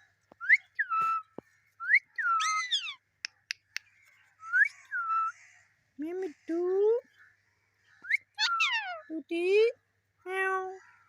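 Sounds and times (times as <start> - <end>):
parrot whistling: 8.1 - 9.0.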